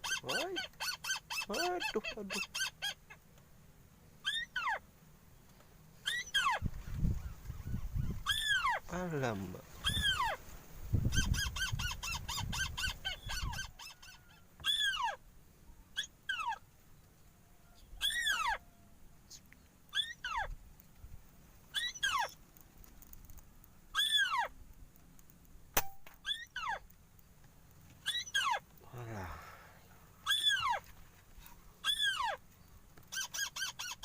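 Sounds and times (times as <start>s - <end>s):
sharp crack: 25.2s - 26.3s.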